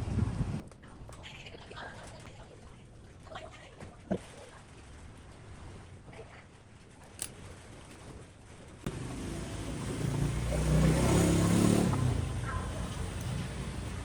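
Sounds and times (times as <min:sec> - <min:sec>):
small engine running: 0:08.9 - 0:14.0.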